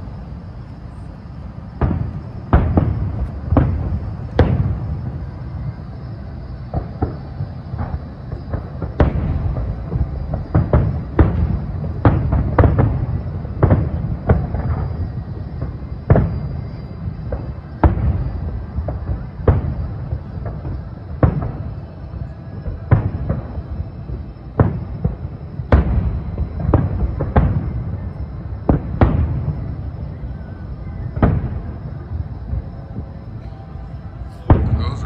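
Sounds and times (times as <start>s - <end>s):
continuous low rumble: 0.0s - 35.0s
distant fireworks booming: 0.0s - 35.0s.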